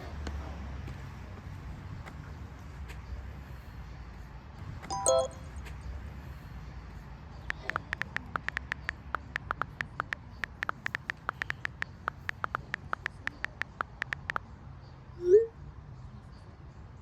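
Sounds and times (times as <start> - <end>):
rapid irregular clicking: 7.4 - 14.4.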